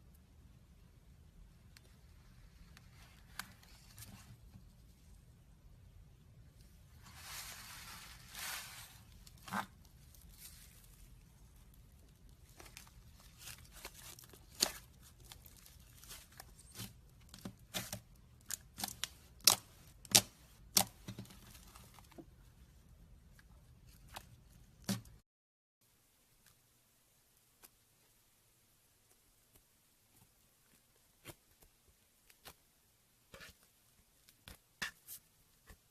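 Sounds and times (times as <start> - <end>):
slime stretching rustle: 6.8 - 22.7.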